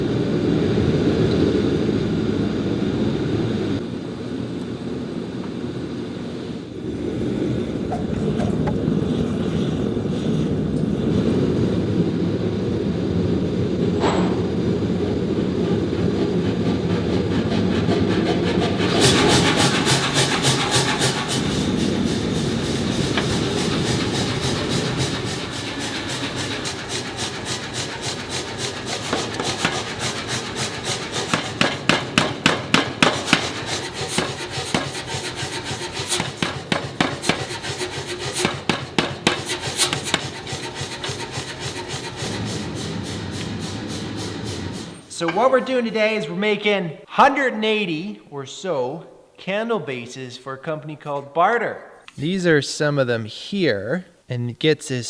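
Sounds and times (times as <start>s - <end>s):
machinery roaring: 6.6s - 45.7s
power hammer hammering: 14.0s - 45.5s.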